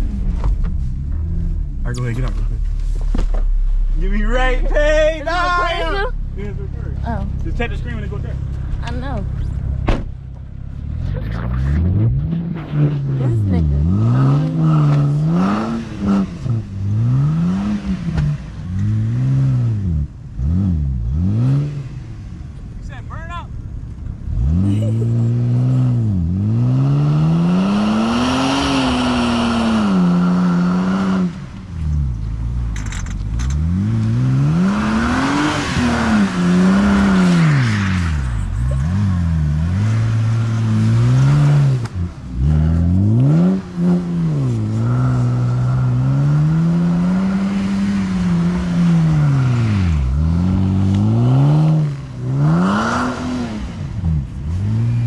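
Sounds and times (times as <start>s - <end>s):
car engine revving hard: 10.8s - 22.3s, 24.3s - 31.6s, 33.4s - 55.0s.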